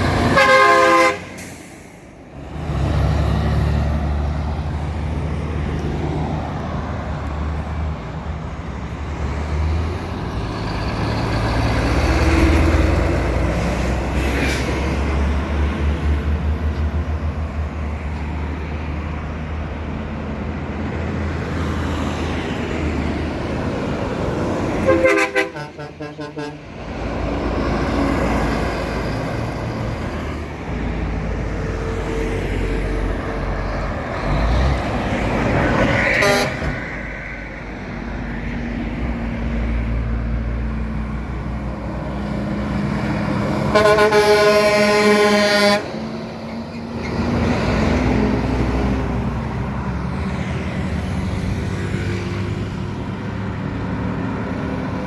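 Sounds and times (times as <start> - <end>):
truck engine and road noise: 0.0 - 55.0
vehicle horn honking: 0.3 - 1.4, 24.8 - 26.6, 36.2 - 36.8, 43.7 - 45.9.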